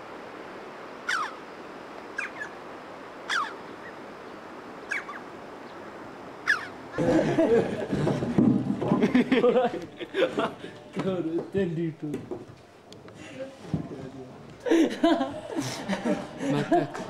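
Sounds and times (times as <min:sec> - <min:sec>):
steady background hiss: 0:00.0 - 0:17.0
bird chirping: 0:01.0 - 0:01.4, 0:02.1 - 0:02.6, 0:03.3 - 0:07.1.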